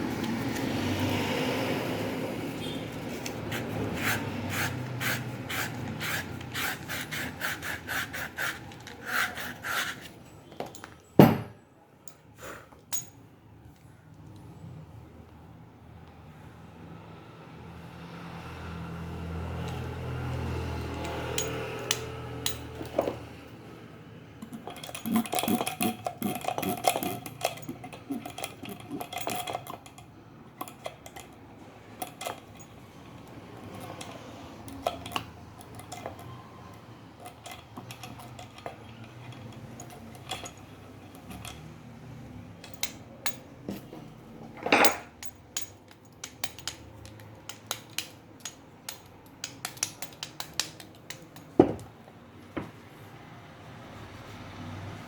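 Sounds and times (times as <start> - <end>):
metal tools clinking: 8.6 - 13.3, 20.8 - 23.2, 24.4 - 51.9.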